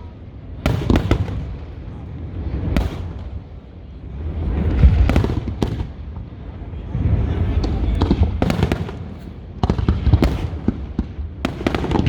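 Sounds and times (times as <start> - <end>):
deep rumbling booms: 4.1 - 12.0.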